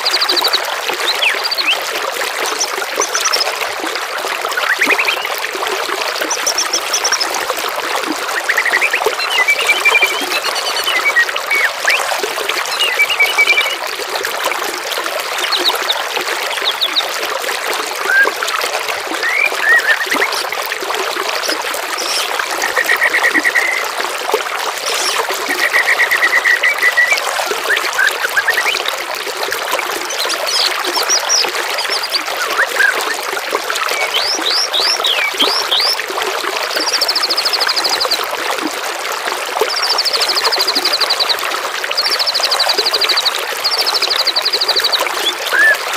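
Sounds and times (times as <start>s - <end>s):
songbirds singing: 0.0s - 1.8s, 4.6s - 5.3s, 6.2s - 7.4s, 8.3s - 13.8s, 15.4s - 17.1s, 19.1s - 20.5s, 21.3s - 23.9s, 24.8s - 28.9s, 30.0s - 33.2s, 33.9s - 36.0s, 42.0s - 45.9s
water trickling and gurgling: 0.0s - 45.9s.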